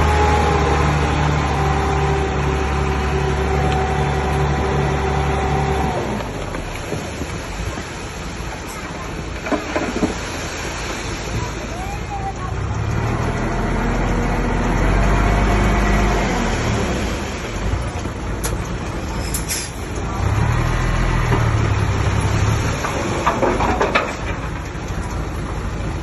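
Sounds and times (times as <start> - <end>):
diesel engine of heavy machinery: 0.0 - 26.0
metallic clanks and rattles: 22.7 - 25.2.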